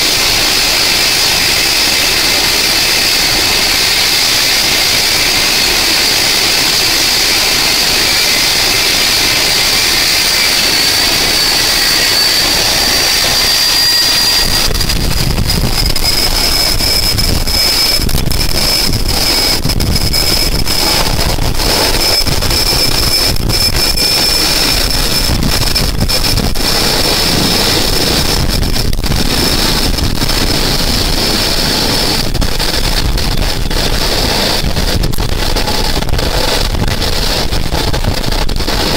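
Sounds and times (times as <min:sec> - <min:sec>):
helicopter turbine engine whine: 0:00.0 - 0:38.9
wind buffeting microphone: 0:00.0 - 0:38.9.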